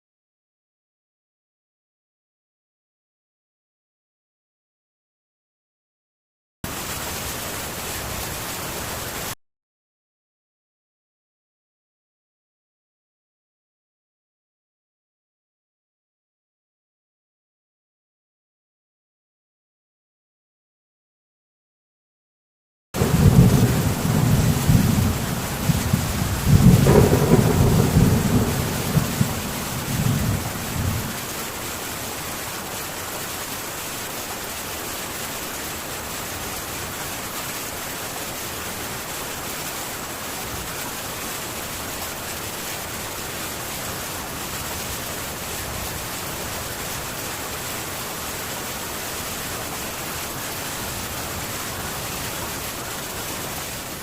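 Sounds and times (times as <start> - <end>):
heavy rain on a tin roof: 6.6 - 9.4, 23.0 - 54.0
thunder rumbling: 23.0 - 31.3.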